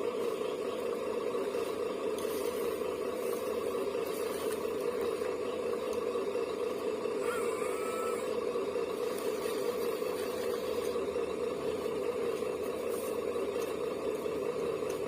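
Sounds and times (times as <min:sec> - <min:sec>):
model motor humming: 0:00.0 - 0:15.0
faint short tone: 0:07.2 - 0:08.4.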